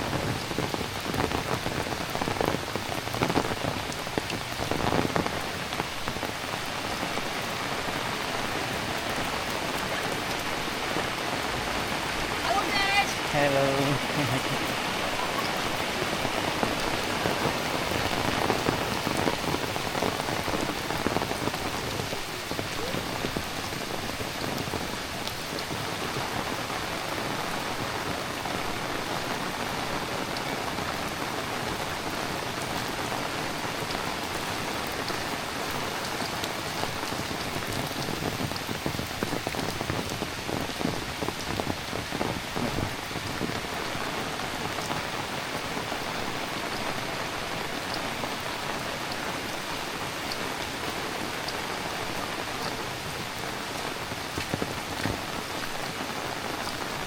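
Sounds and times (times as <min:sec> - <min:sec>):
heavy rain pattering: 0:00.0 - 0:57.0
sharp water drips: 0:02.0 - 0:25.9.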